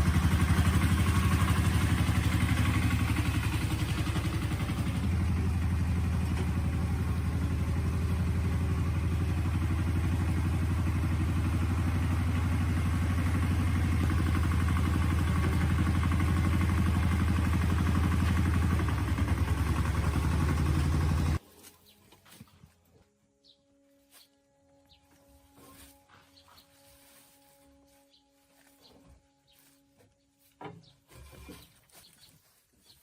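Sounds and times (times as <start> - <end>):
engine running steadily: 0.0 - 21.4.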